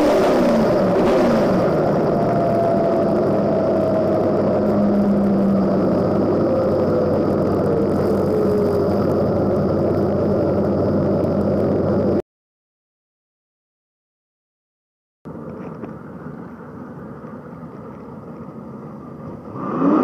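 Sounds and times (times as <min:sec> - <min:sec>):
car engine idling: 0:00.0 - 0:12.2, 0:15.3 - 0:19.6
thin whine sliding down: 0:00.0 - 0:12.2.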